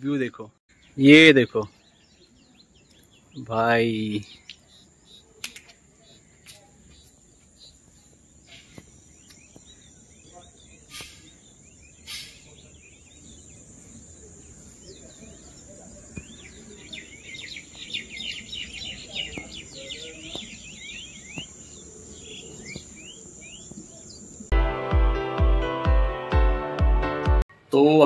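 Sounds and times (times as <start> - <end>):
birds chirping: 0.0 - 24.5
insects trilling: 1.0 - 24.5
music: 24.5 - 27.4.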